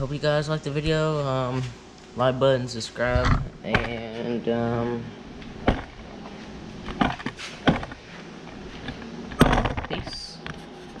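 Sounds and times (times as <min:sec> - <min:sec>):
knocks and clicks: 0:05.6 - 0:06.0, 0:06.9 - 0:08.0, 0:08.9 - 0:10.0.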